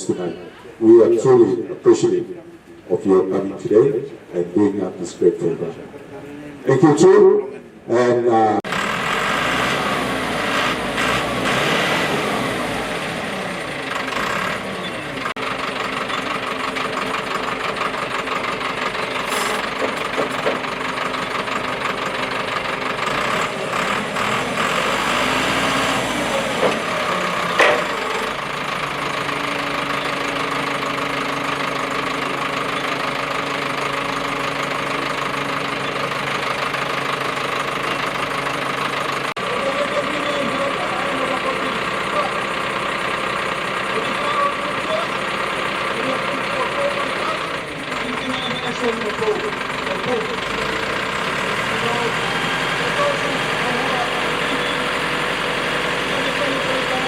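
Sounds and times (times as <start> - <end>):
truck engine running: 8.6 - 57.0
sharp clack: 27.6 - 28.1.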